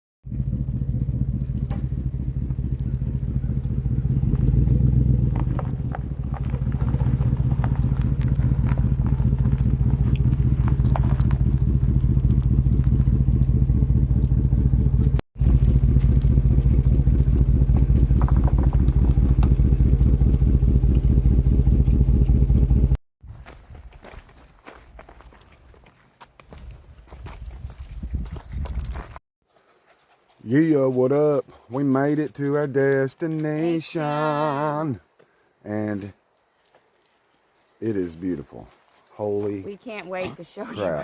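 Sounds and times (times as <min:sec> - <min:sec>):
truck engine running: 0:00.2 - 0:23.0.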